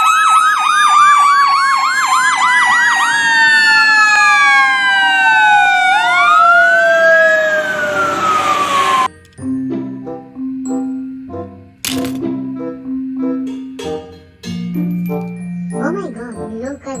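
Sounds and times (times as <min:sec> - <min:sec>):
emergency siren yelping and wailing: 0:00.0 - 0:09.1.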